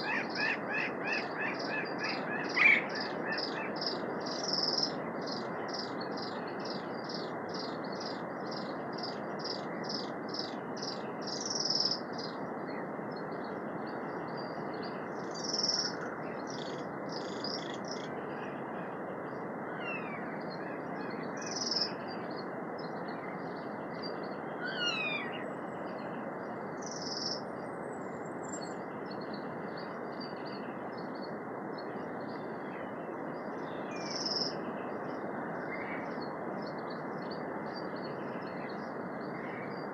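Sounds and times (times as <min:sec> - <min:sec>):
steady rushing background noise: 0:00.0 - 0:19.7.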